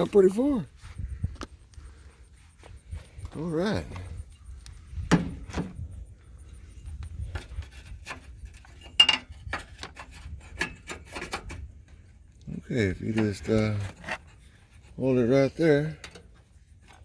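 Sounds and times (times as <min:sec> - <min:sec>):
steady low rumble: 0:00.0 - 0:08.6
metal parts and tools knocking: 0:07.2 - 0:11.6.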